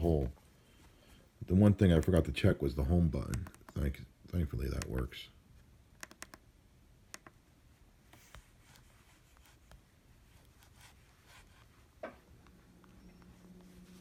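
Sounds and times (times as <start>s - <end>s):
faint taps and rubbing: 11.4s - 13.9s.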